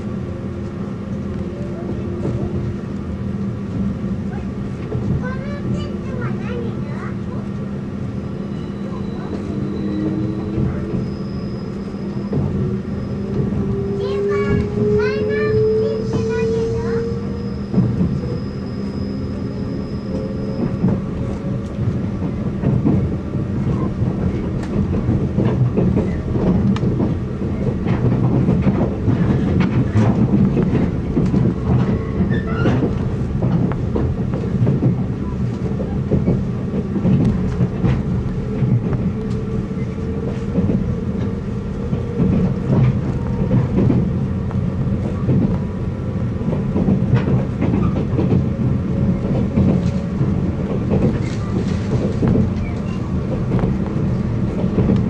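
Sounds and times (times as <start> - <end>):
wheels clicking over rail joints: 20.6 - 55.0.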